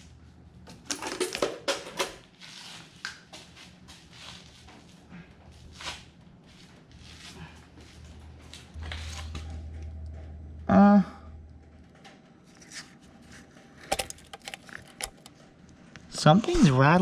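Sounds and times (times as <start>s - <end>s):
low steady hum: 5.0s - 17.0s
tools clicking on engine parts: 13.8s - 15.4s.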